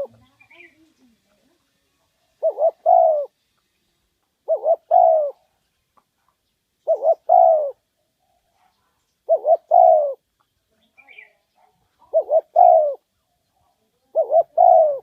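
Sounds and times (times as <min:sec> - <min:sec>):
dove cooing: 0:00.0 - 0:00.7, 0:02.2 - 0:03.4, 0:04.4 - 0:05.6, 0:06.8 - 0:10.3, 0:11.2 - 0:13.1, 0:14.0 - 0:15.0.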